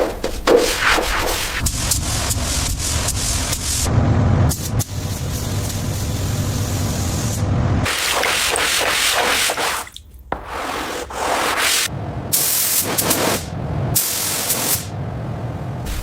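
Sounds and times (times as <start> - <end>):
rubbing and sanding: 0.0 - 3.9, 7.9 - 11.9, 12.6 - 13.5
hissing spray: 0.6 - 3.9, 4.5 - 14.9.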